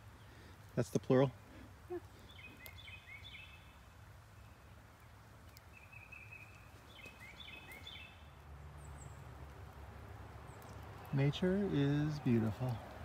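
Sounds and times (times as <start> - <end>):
faint bird chirps: 1.8 - 9.2.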